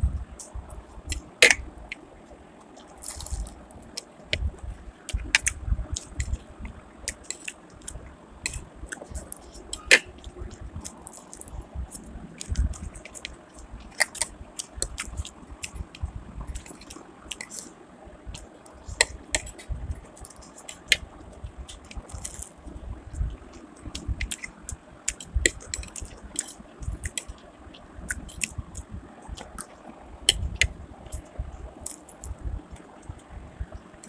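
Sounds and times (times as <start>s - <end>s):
person chewing and biting: 2.8s - 4.4s, 7.0s - 17.7s, 18.4s - 22.6s, 31.8s - 32.3s.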